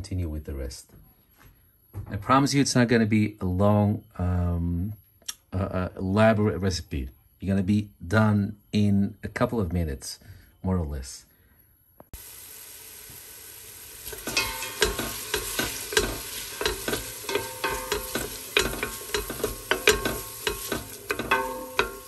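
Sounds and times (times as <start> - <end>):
onion sizzling in oil: 12.2 - 22.0
utensil scraping a pot: 14.0 - 22.0.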